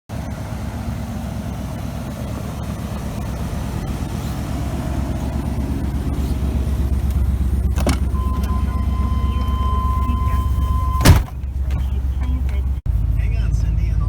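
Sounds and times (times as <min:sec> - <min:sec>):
truck engine and road rumble: 0:00.1 - 0:14.0
steady high beep: 0:08.2 - 0:11.1.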